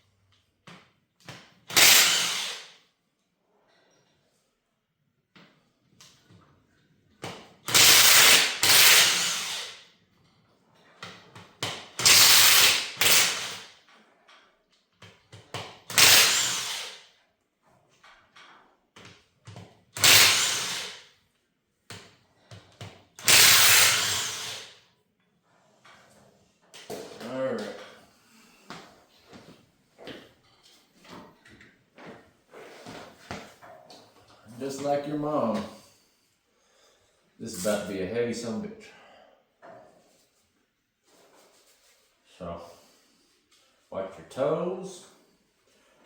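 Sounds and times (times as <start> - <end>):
power driver bursts: 1.7 - 2.6, 12.0 - 13.6, 15.9 - 16.9, 20.0 - 21.0, 23.2 - 24.7.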